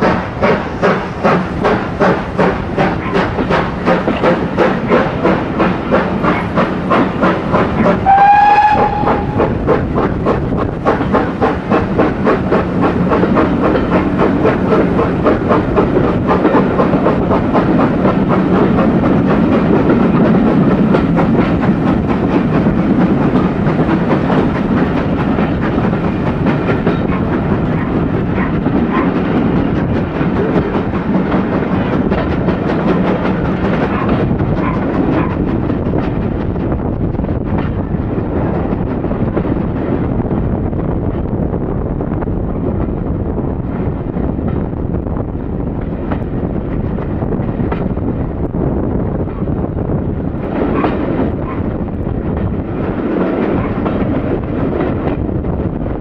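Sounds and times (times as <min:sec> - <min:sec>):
steam locomotive exhaust beats: 0:00.0 - 0:56.0
locomotive whistle: 0:08.0 - 0:09.5.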